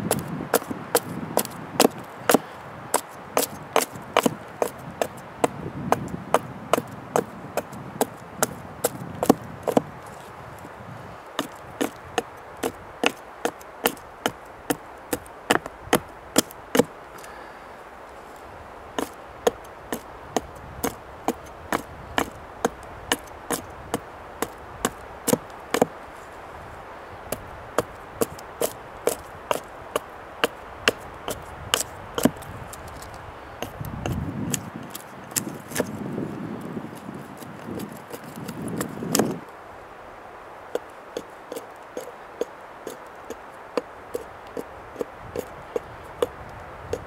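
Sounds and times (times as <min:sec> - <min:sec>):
axe chopping wood: 0:00.0 - 0:09.9, 0:11.4 - 0:16.9, 0:19.0 - 0:25.9, 0:27.3 - 0:32.4.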